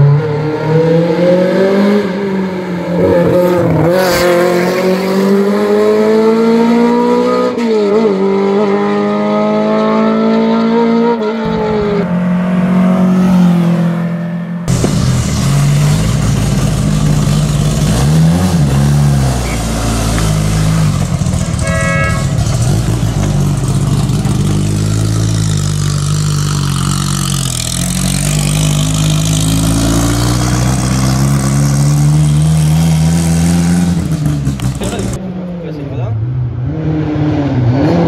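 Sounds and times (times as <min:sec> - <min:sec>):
horn beep: 0:21.6 - 0:22.6.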